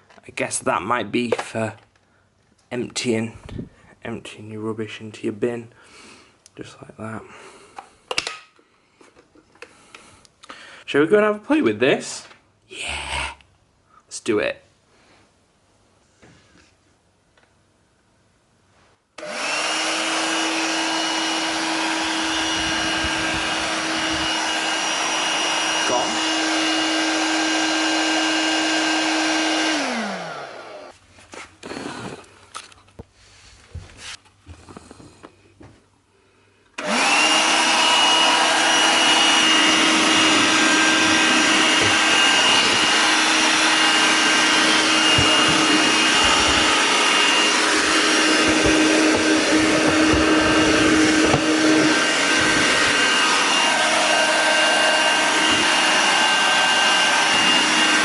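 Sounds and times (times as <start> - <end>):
handheld vacuum cleaner running: 19.2 - 31.0, 36.8 - 58.0.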